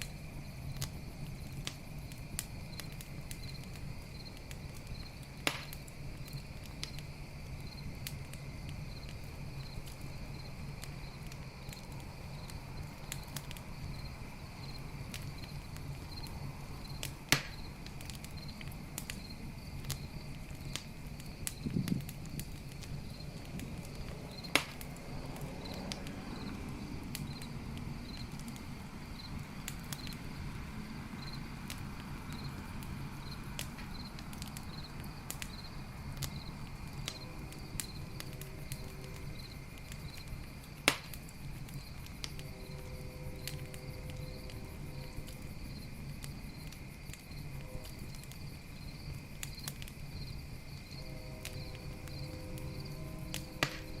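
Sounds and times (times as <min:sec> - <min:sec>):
loud sharp fire pops: 0:00.0 - 0:14.0, 0:14.6 - 0:30.2, 0:31.2 - 0:42.8, 0:53.3 - 0:54.0
campfire flames crackling: 0:00.0 - 0:54.0
crickets chirping: 0:00.0 - 0:54.0
high insect trill: 0:00.0 - 0:54.0.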